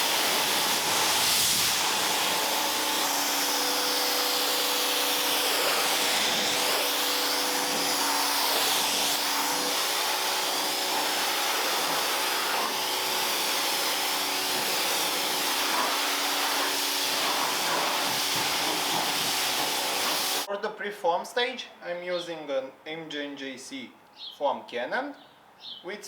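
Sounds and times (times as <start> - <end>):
pressure washer motor hum: 0.0 - 20.5
water jet spraying car: 0.0 - 20.5.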